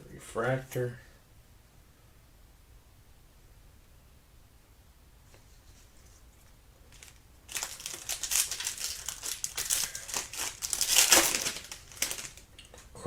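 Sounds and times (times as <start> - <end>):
foil wrapper crinkling: 6.8 - 12.9.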